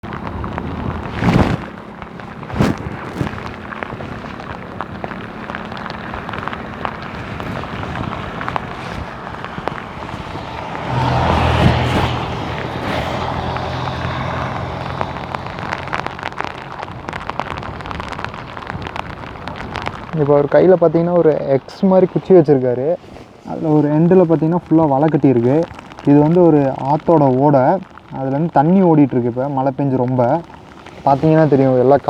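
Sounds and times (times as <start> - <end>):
steady rain: 0.0 - 32.0
vehicle engine humming: 0.0 - 32.0.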